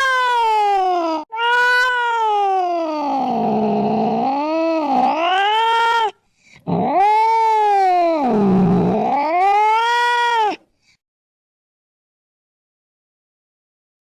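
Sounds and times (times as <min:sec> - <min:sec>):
cat yowling: 0:00.0 - 0:10.6.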